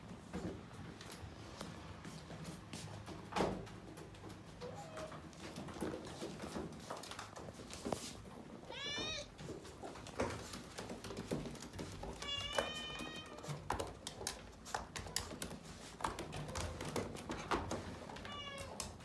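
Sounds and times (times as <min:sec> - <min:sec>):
cat meowing: 0:08.6 - 0:09.4, 0:12.2 - 0:13.5, 0:18.2 - 0:18.9.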